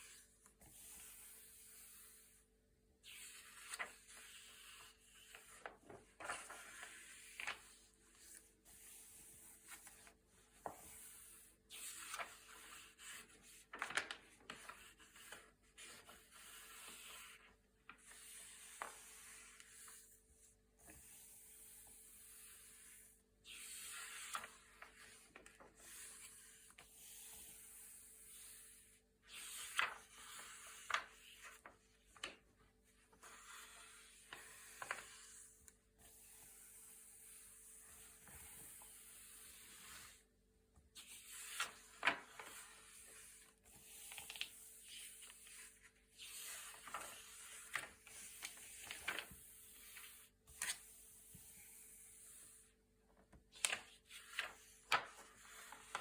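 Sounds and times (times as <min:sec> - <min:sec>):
paper pages turning: 0:03.0 - 0:20.2, 0:23.8 - 0:26.8, 0:29.3 - 0:32.5, 0:33.1 - 0:35.5, 0:41.0 - 0:51.1, 0:53.5 - 0:56.0.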